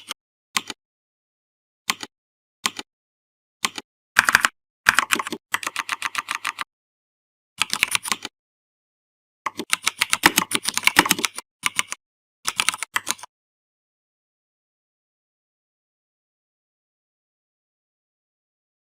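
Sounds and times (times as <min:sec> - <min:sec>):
typing on computer keyboard: 0:03.6 - 0:06.7, 0:07.6 - 0:08.3, 0:09.5 - 0:13.3.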